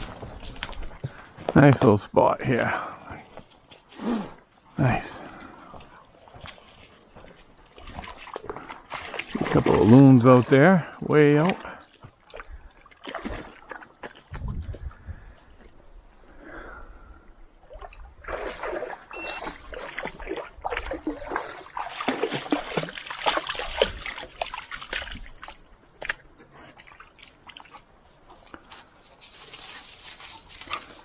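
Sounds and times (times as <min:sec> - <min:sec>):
water splashing in a pond: 0:05.2 - 0:15.8, 0:17.5 - 0:31.0
water dripping: 0:17.7 - 0:28.9.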